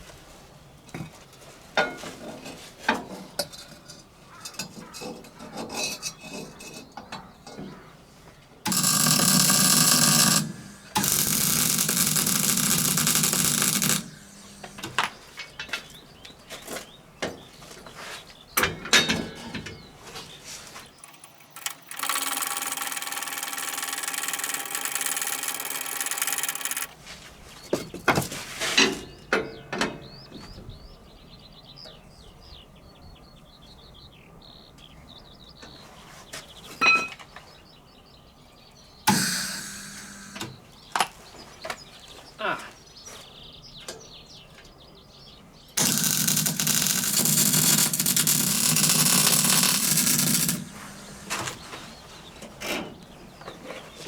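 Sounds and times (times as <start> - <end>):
power tool running: 8.7 - 15.2, 21.5 - 26.9, 39.1 - 40.6, 45.8 - 52.0.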